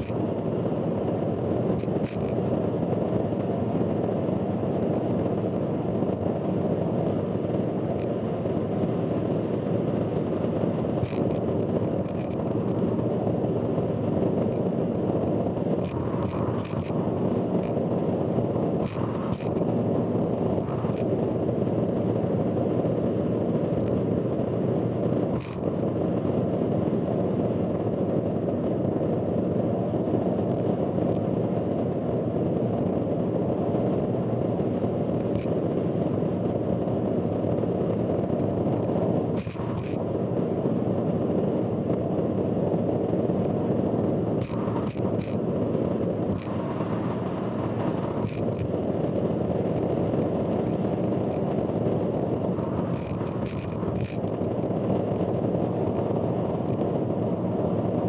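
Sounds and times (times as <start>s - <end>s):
sharp clicks and ticks: 1.4s - 3.3s, 11.0s - 13.4s, 14.4s - 17.0s, 18.8s - 19.6s, 38.2s - 40.0s, 44.4s - 47.0s, 47.6s - 48.8s, 49.4s - 56.8s.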